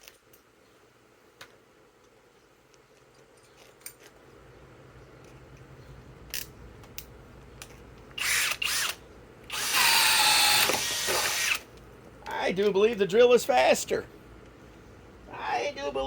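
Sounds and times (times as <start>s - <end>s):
impact driver drilling: 8.2s - 11.6s.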